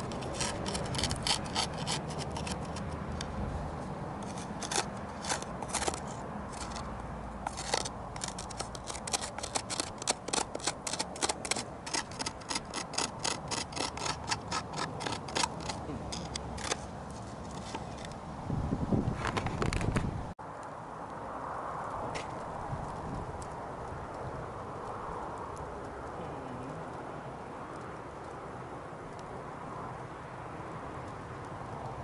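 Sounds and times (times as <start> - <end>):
blade scraping wood: 0.0 - 18.2.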